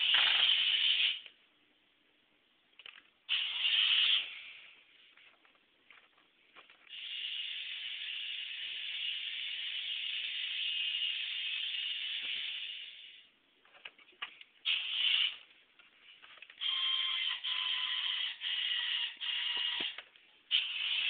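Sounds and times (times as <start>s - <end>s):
toy truck motor whirring: 0.0s - 1.3s, 16.6s - 21.0s.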